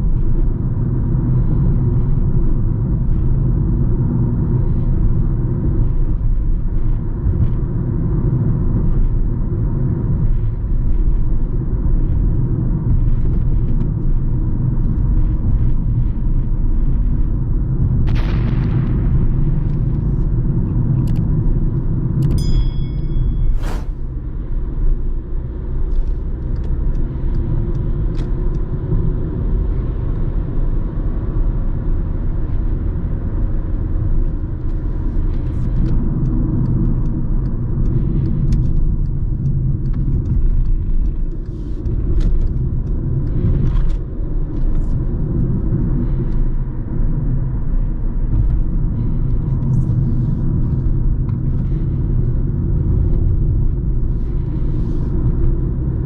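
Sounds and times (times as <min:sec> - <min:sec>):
low machinery rumble: 0:32.5 - 0:56.0.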